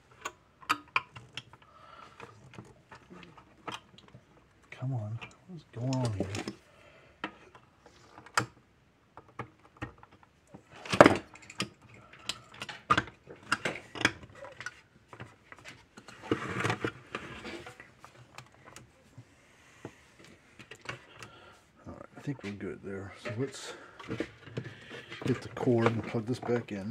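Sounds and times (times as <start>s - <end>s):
clicks knocks and scrapes: 9.2s - 21.4s, 23.2s - 26.9s.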